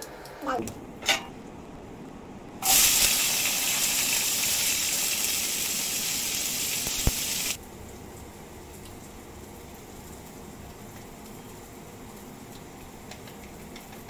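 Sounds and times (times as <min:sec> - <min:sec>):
food sizzling in hot oil: 0:02.6 - 0:07.6.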